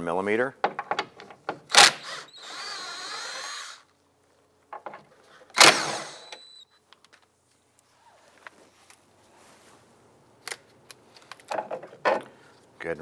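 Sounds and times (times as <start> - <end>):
power tool spinning nuts off: 1.7 - 3.8, 5.6 - 6.6.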